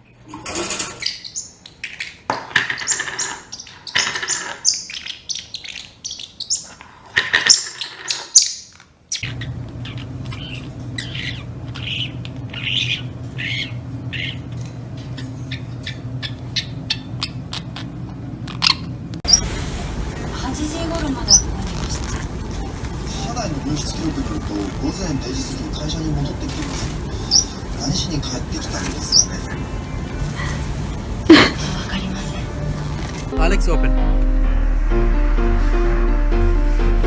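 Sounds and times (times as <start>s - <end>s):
parrot squawking and chirping: 9.2s - 14.5s, 19.3s - 33.3s
steady low hum: 19.2s - 33.4s.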